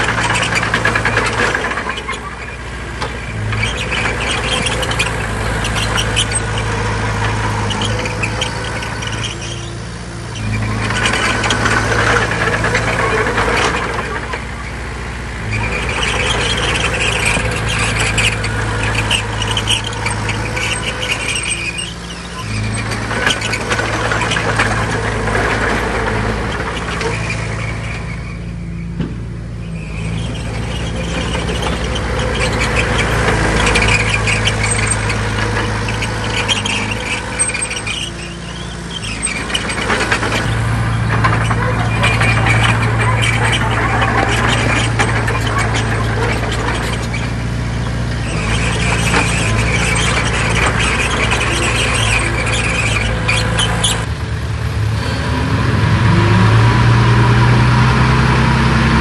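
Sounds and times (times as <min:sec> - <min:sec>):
metallic squealing and clanking: 0:00.0 - 0:54.2
diesel earthmoving machine engine: 0:00.0 - 0:59.0.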